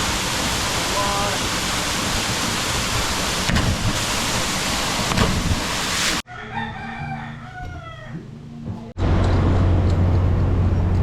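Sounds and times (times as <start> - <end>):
waterfall rushing: 0.0 - 6.2
rooster crowing: 6.2 - 8.5.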